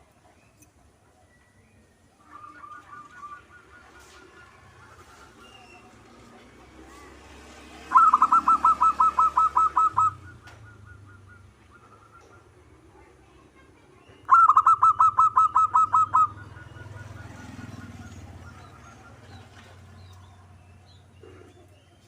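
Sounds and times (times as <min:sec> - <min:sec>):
dove cooing: 0:02.2 - 0:05.6, 0:07.8 - 0:12.9, 0:14.3 - 0:20.1.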